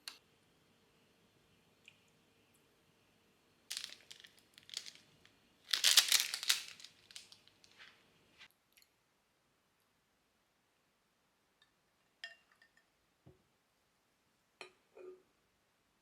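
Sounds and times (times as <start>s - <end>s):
packaging crinkling: 3.7s - 5.1s, 5.7s - 7.9s.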